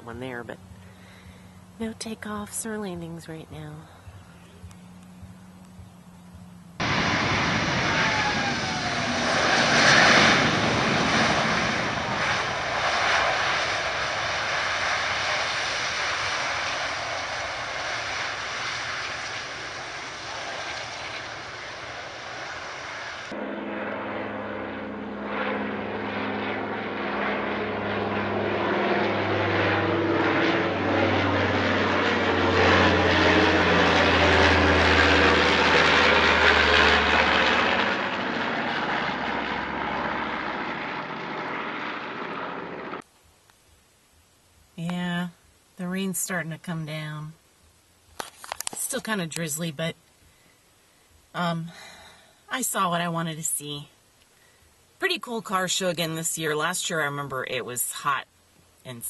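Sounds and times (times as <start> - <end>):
propeller airplane passing by: 0.0 - 43.1
propeller plane engine droning: 0.0 - 59.0.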